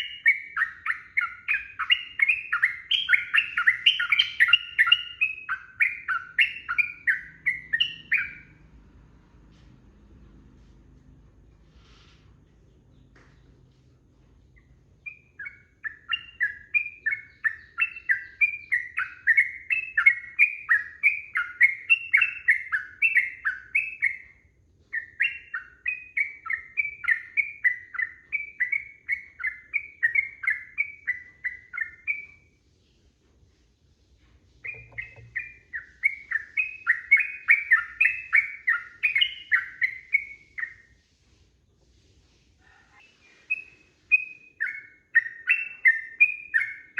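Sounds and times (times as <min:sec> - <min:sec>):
bulbul chattering song: 0:00.0 - 0:08.6, 0:34.6 - 0:40.9.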